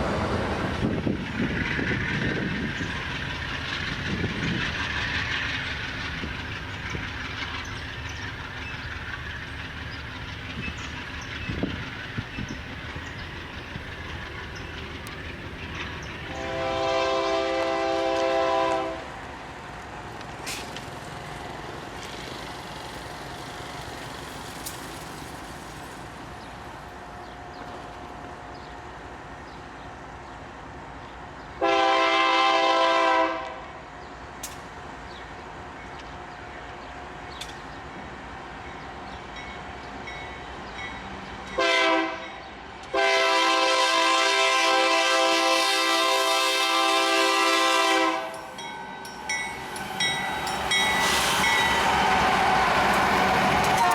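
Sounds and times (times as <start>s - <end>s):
train running noise: 0.0s - 53.9s
locomotive air horn blasts: 16.3s - 19.1s, 31.6s - 33.6s, 41.6s - 42.3s, 42.9s - 48.5s.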